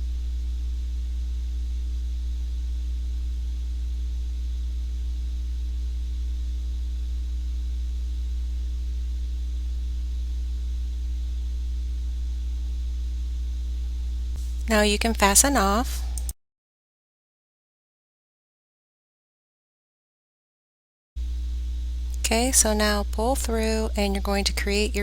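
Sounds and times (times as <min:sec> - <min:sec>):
faint hiss: 0:00.0 - 0:16.4
low electrical hum: 0:00.0 - 0:16.4, 0:21.2 - 0:25.0.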